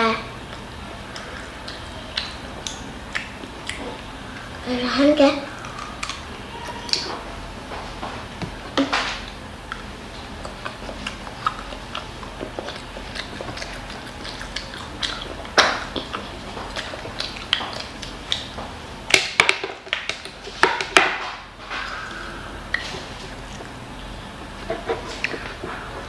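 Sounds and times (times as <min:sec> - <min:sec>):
child chewing food: 0:00.4 - 0:26.0
wet mouth clicks: 0:00.6 - 0:04.6, 0:05.6 - 0:06.3, 0:09.3 - 0:18.6, 0:22.7 - 0:23.8, 0:24.6 - 0:25.7.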